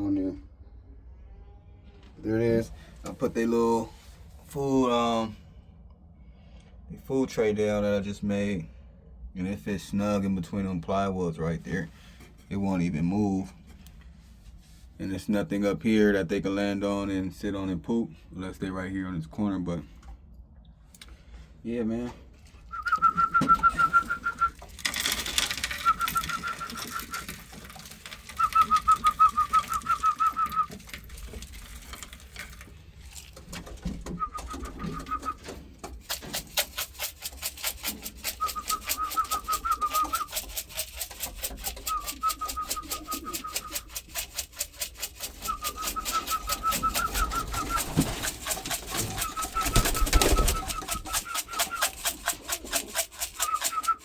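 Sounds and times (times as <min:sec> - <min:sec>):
pigeons fluttering calls: 0:22.8 - 0:32.6, 0:33.2 - 0:54.0
fast run of light clicks: 0:22.8 - 0:54.0.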